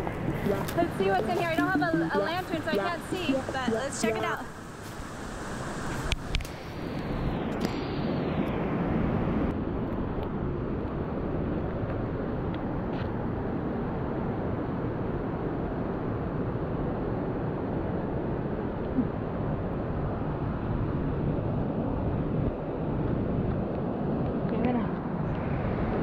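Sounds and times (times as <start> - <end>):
river rushing: 0.0 - 7.4.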